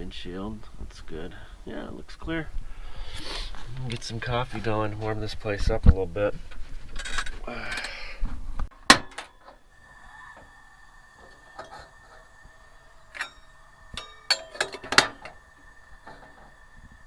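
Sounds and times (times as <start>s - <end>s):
cups and utensils clinking: 8.8s - 17.0s
faint steady high tone: 9.0s - 17.0s.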